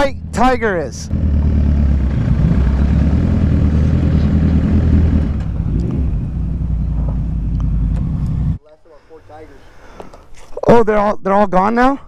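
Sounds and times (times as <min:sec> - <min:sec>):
motorcycle engine running: 0:00.0 - 0:08.6
wind and road noise: 0:00.0 - 0:08.6.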